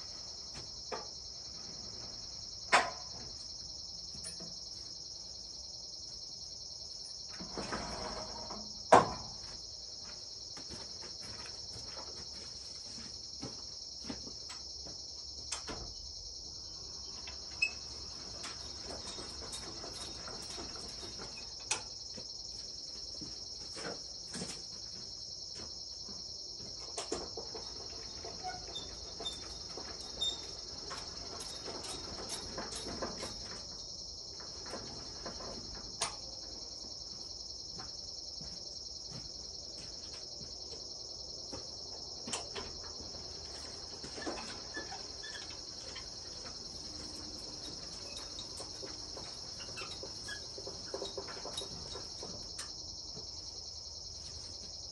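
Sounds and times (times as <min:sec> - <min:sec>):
insects trilling chorus: 0:00.0 - 0:54.9.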